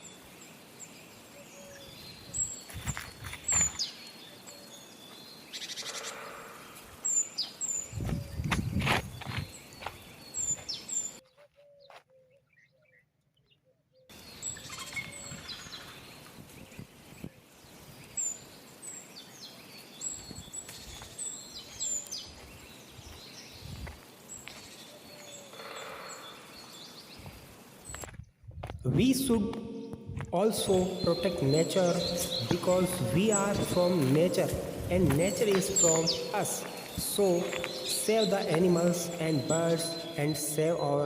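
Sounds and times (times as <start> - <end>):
steady outdoor hiss: 0.0 - 11.2, 14.1 - 41.0
small birds chirping: 0.0 - 41.0.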